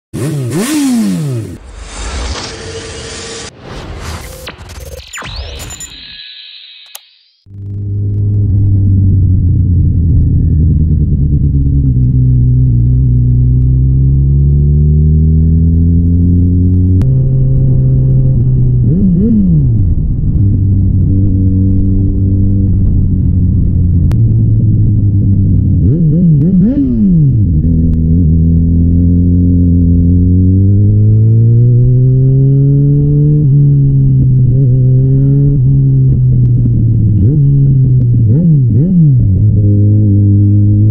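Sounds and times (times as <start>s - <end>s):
motorcycle engine accelerating: 0.1s - 3.5s, 7.5s - 40.9s
short rising whine: 1.6s - 11.5s.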